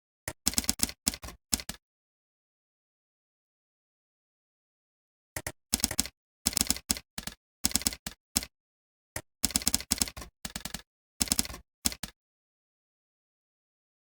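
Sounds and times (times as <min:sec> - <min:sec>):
computer keyboard typing: 0:00.3 - 0:01.8, 0:05.4 - 0:08.5, 0:09.2 - 0:12.2.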